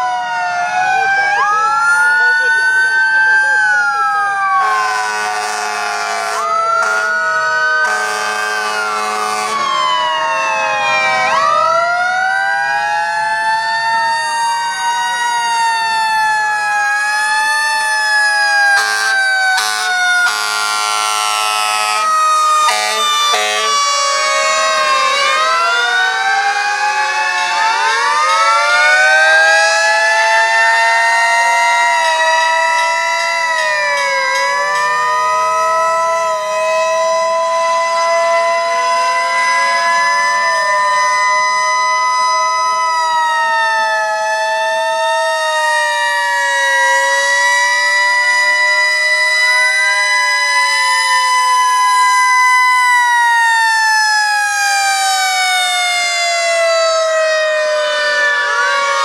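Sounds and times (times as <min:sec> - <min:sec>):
fire truck sirens winding: 0:00.0 - 0:59.0
short horn blasts: 0:04.9 - 0:07.1, 0:22.7 - 0:23.8.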